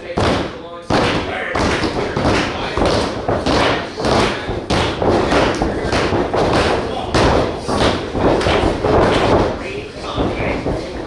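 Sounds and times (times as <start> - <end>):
continuous noisy background: 0.0 - 11.0
heavy thuds in hall: 0.0 - 11.0.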